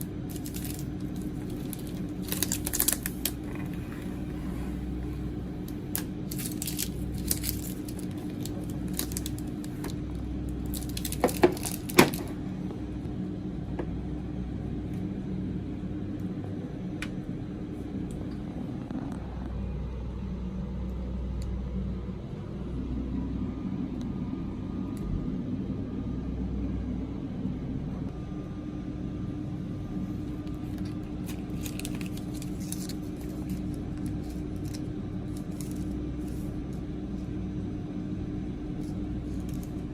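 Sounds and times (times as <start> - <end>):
steady low hum: 0.0 - 39.9
snack packaging crinkling: 0.1 - 5.0, 5.6 - 12.4, 30.4 - 36.6, 38.8 - 39.9.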